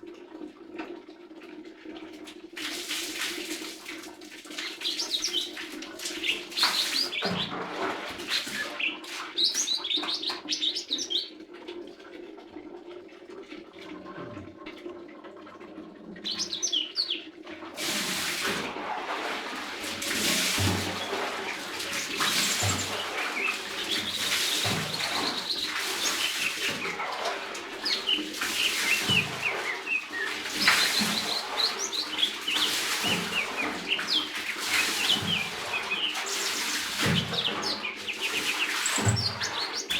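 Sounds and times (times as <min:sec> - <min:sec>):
bird chirping and twittering: 0:04.6 - 0:07.5, 0:08.6 - 0:11.3, 0:16.2 - 0:17.2, 0:21.9 - 0:27.0, 0:27.8 - 0:39.9.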